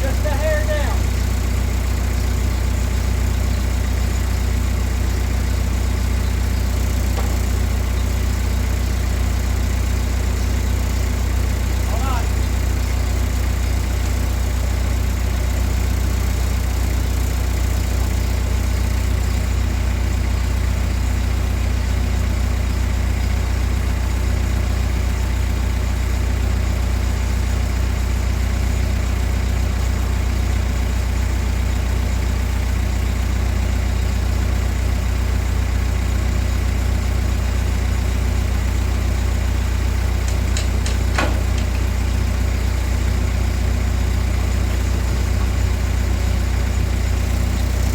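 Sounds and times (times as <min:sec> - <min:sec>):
engine idling: 0:00.0 - 0:47.9.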